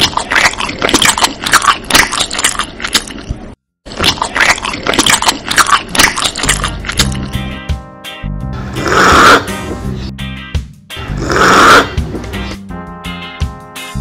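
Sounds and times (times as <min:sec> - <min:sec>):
wet chewing: 0:00.0 - 0:07.5.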